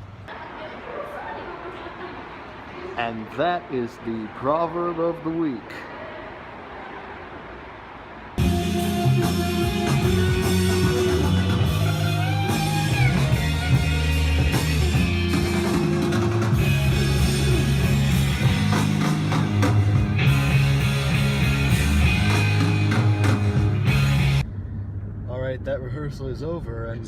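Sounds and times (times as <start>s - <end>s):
rock music: 8.4s - 24.4s.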